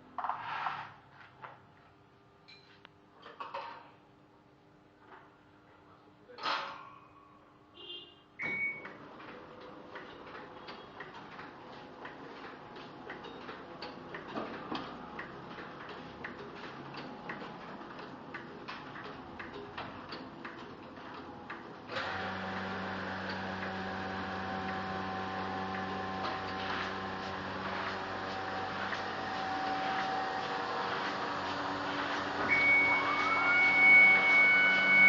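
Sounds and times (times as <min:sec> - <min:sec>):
printing press clicking: 0:08.4 - 0:33.3
loud machine hum with held tones: 0:21.9 - 0:35.0.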